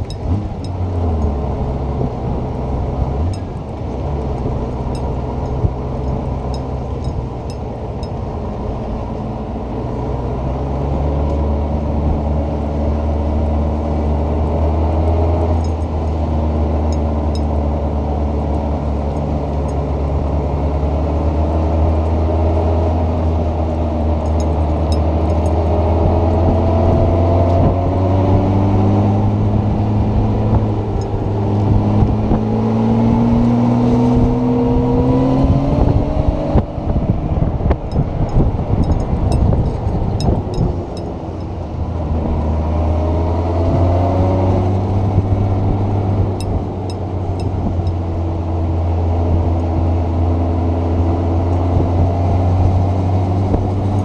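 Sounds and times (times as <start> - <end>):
rushing wind noise: 22.1 - 54.0
motorcycle engine running: 22.9 - 43.0.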